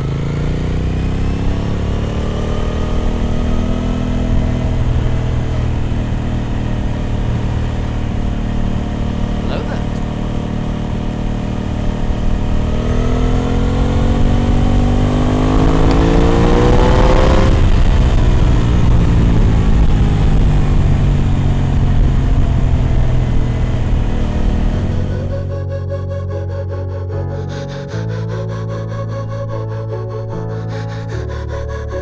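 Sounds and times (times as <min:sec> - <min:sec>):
motorcycle engine revving: 0:00.0 - 0:25.6.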